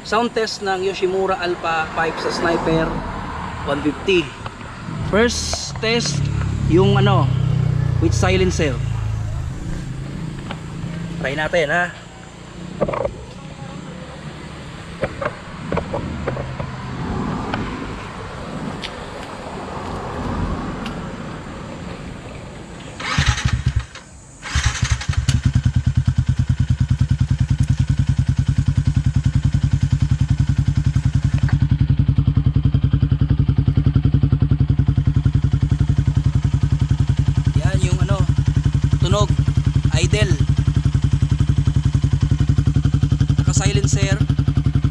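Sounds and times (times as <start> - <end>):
motorcycle engine idling: 3.8 - 15.9, 22.1 - 44.9
motorcycle engine cranking: 22.8 - 28.5.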